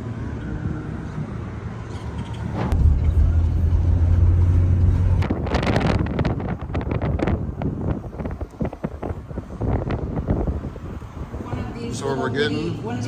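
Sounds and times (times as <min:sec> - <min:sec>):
rushing noise: 0:02.6 - 0:07.2
car engine rumbling: 0:02.6 - 0:11.5.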